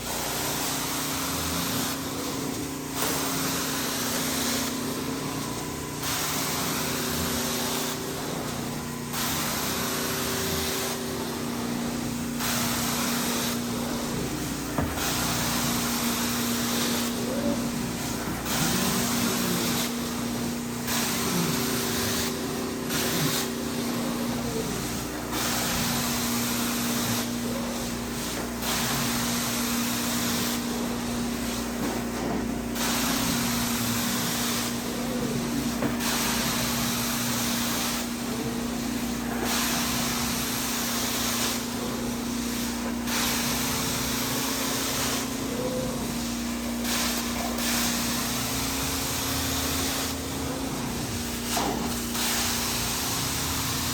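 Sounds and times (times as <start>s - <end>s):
vacuum motor hum: 0.0s - 53.9s
spray and suction hiss: 0.2s - 53.9s.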